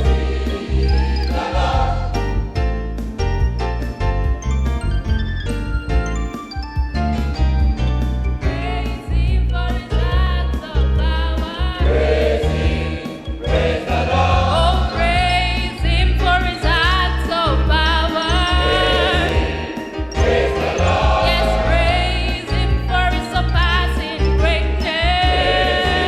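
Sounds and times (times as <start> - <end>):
choir singing: 0.0 - 2.5, 11.3 - 24.2, 24.8 - 26.0
bass line and beat: 14.3 - 22.9.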